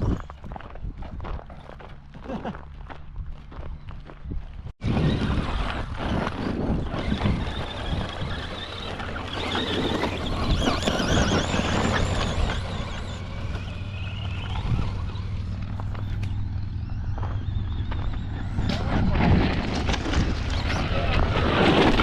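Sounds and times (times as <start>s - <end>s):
tyres crunching on gravel: 0.0s - 22.0s
high-pitched motor whine: 4.8s - 22.0s.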